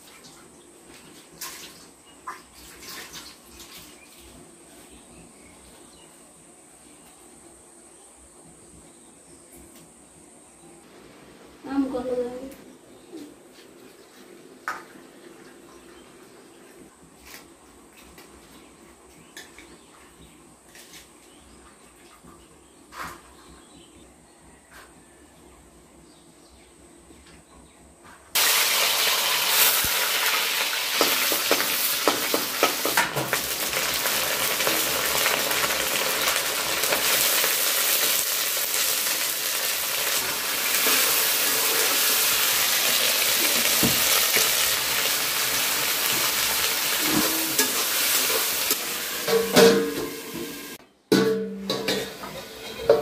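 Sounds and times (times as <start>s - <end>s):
vegetables sizzling in oil: 28.3s - 50.8s
steel plate clanking on pan: 30.9s - 33.5s, 47.0s - 53.0s.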